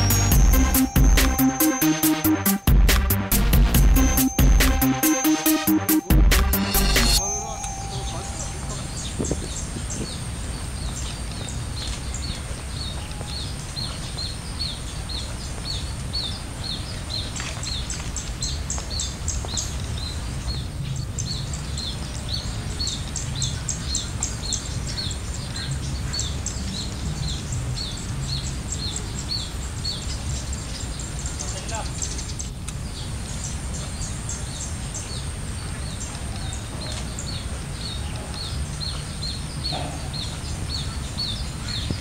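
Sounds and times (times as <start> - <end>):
bird chirping: 0.0 - 3.2, 3.8 - 42.0
high clicking call: 0.0 - 9.4
faint high whine: 6.8 - 10.2.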